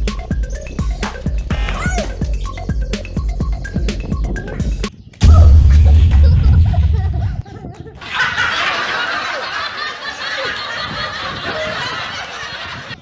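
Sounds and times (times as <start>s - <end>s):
deep low boom: 5.2s - 7.7s
many voices laughing: 6.0s - 13.0s.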